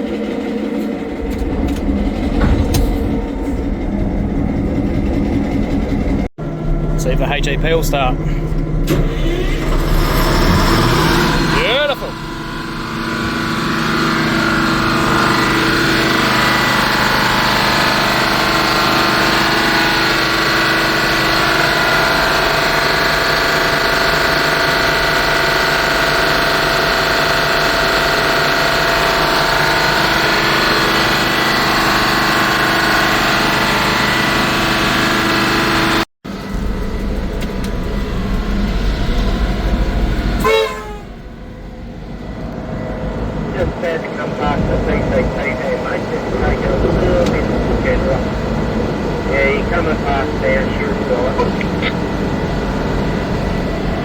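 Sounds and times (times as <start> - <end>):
generator engine drone: 0.0 - 54.0
deep low rumble: 0.3 - 18.9, 36.3 - 54.0.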